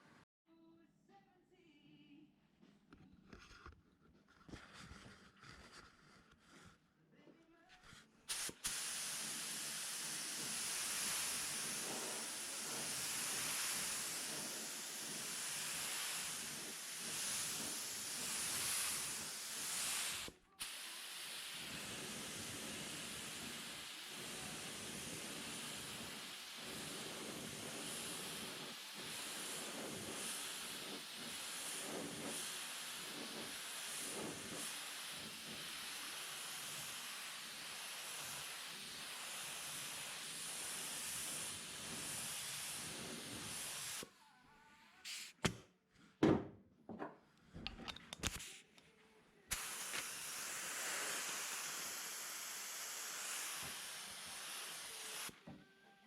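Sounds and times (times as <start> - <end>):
workshop tool hissing: 7.8 - 44.1, 45.0 - 45.6, 47.6 - 48.8, 49.5 - 55.6.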